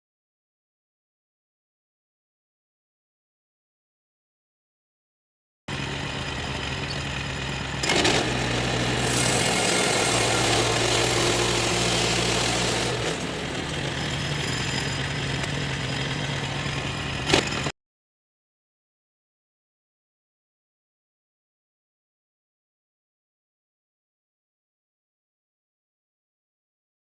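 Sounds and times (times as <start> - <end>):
sawmill engine running: 5.7 - 17.7
saw blade cutting wood: 6.1 - 17.7.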